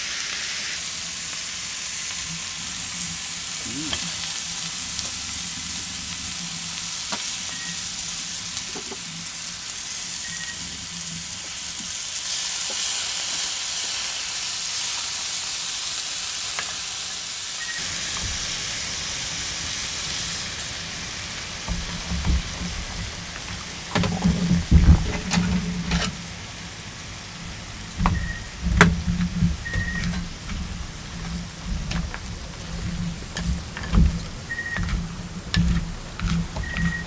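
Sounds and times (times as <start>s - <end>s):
food sizzling in a frying pan: 0.0s - 37.0s
low bumps: 21.7s - 37.0s.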